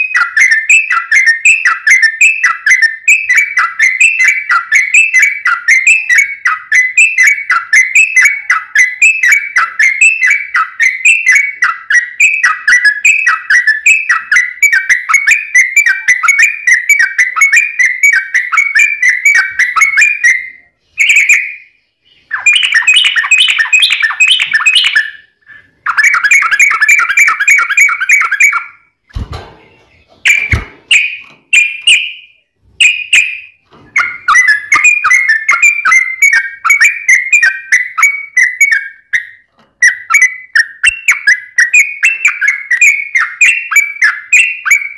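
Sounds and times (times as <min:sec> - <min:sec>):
bird singing chattering whistles: 0:00.0 - 0:29.0, 0:29.7 - 0:44.9
soft thumps: 0:29.1 - 0:31.4.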